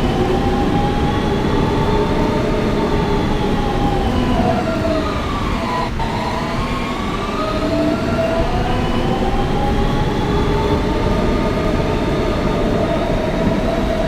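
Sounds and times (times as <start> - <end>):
subway train motor whining: 0.0 - 14.0
wheels rumbling on rail: 0.0 - 14.0.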